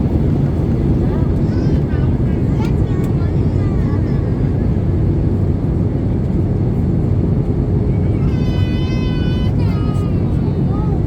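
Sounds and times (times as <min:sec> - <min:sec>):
airplane cabin engine rumble: 0:00.0 - 0:11.0.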